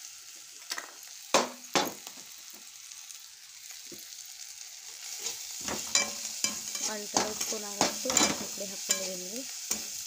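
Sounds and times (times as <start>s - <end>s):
vegetables sizzling in oil: 0.0s - 10.0s
spatula scraping a metal pan: 5.0s - 10.0s.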